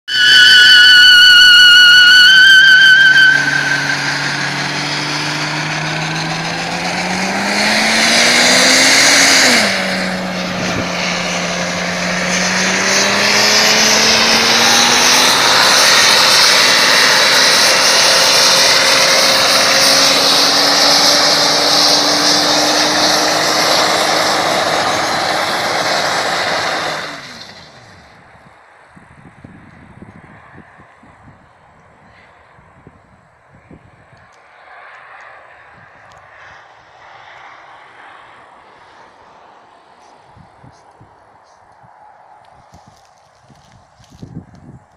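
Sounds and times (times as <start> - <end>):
tyres screeching in a burnout: 0.1 - 28.2
car engine revving hard: 2.5 - 27.9.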